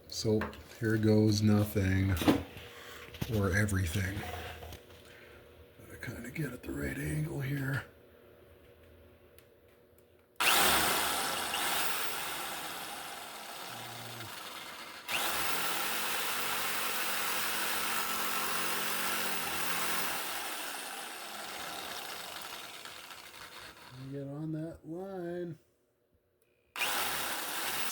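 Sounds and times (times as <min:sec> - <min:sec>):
power saw cutting steel: 0:10.4 - 0:24.2, 0:26.8 - 0:27.9.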